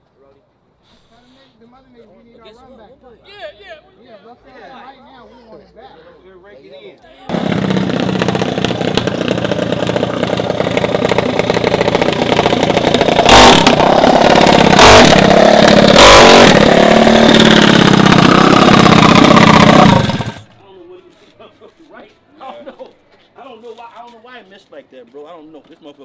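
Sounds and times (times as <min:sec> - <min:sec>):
mini bike engine at high revs: 0:07.3 - 0:20.5.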